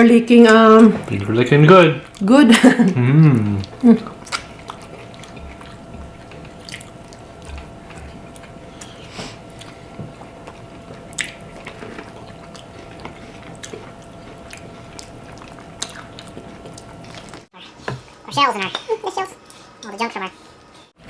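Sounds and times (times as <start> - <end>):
faint steady hum: 0.0 - 21.0
wet squishy chewing: 3.4 - 18.8.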